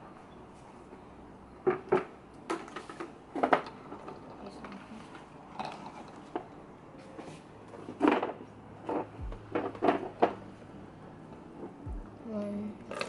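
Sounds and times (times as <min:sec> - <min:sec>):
objects knocking and clattering: 0:01.6 - 0:06.5, 0:07.8 - 0:10.4.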